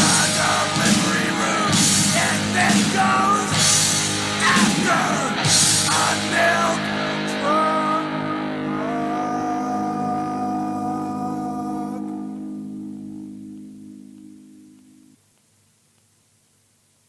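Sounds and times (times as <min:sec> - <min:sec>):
drums: 0:00.0 - 0:09.5
bass: 0:00.0 - 0:15.1
distorted guitars: 0:00.0 - 0:15.3.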